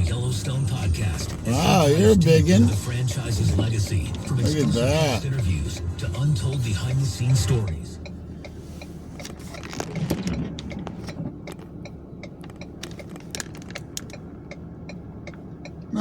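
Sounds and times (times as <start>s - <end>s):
truck engine hum: 0.0s - 16.0s
light clicks and rattles: 9.2s - 14.3s.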